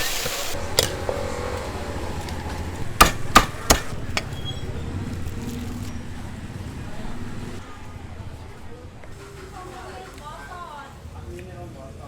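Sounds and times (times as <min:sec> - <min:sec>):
sharp knocks: 0:02.9 - 0:04.3.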